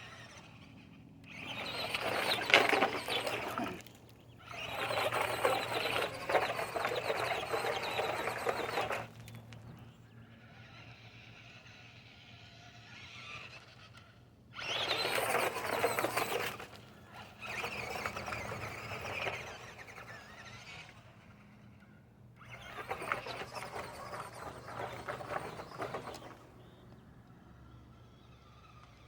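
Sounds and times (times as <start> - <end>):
radio-controlled car motor whining: 0.0 - 29.0
tyres scrabbling on ground: 1.3 - 9.8, 14.6 - 20.4, 22.4 - 27.0.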